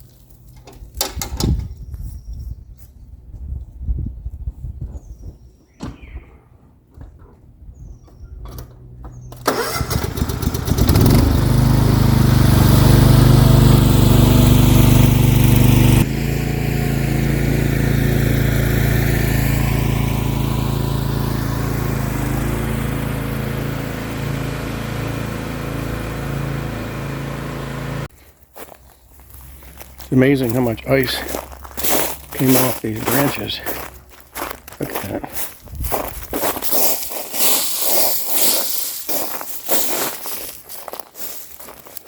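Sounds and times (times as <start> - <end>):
lawn mower engine running: 8.6 - 28.1, 29.9 - 34.2, 37.4 - 39.6.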